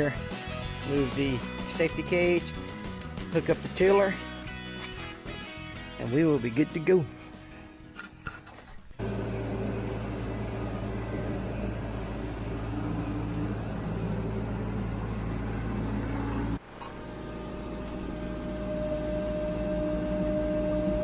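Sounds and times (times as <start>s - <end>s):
tractor diesel engine running: 9.0s - 21.0s.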